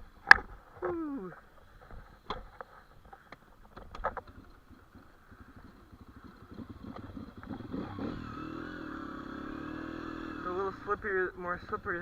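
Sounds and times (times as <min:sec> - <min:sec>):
sharp clicks and knocks: 0:01.9 - 0:05.1
dirt bike engine idling: 0:02.1 - 0:12.0.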